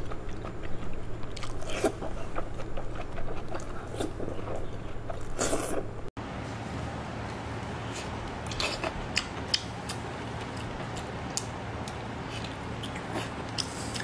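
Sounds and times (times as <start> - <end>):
wet chewing and biting: 0.0 - 5.8.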